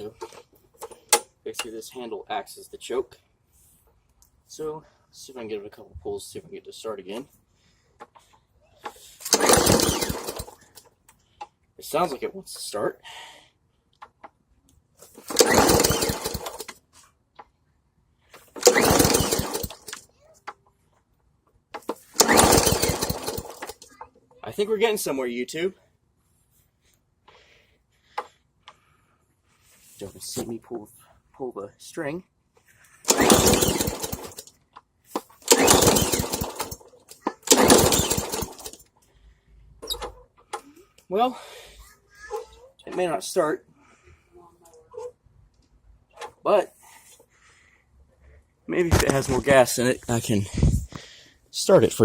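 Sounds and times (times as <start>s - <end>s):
lawn mower engine sputtering: 9.2s - 10.8s, 15.2s - 16.8s, 18.4s - 20.0s, 22.0s - 23.8s, 33.0s - 34.5s, 35.2s - 38.9s
pull cord being pulled: 9.2s - 10.8s, 15.2s - 16.8s, 18.4s - 20.0s, 21.8s - 23.9s, 33.1s - 34.5s, 35.1s - 38.8s.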